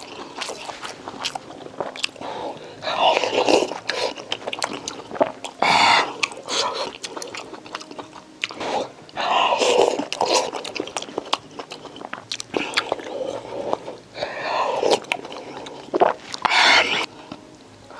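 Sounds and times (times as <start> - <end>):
noisy bursts: 0.0 - 6.7
chewing and biting: 0.0 - 17.4.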